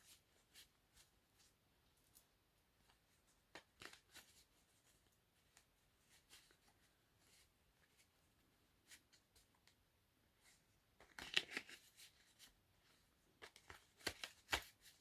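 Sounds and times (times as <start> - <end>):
cards shuffling: 11.0 - 12.1, 13.4 - 15.0.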